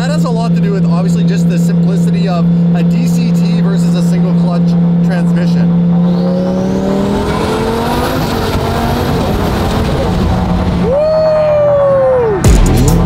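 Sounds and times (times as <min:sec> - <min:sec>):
car engine revving: 0:00.0 - 0:13.0
strong high tone sagging in pitch: 0:05.2 - 0:13.0.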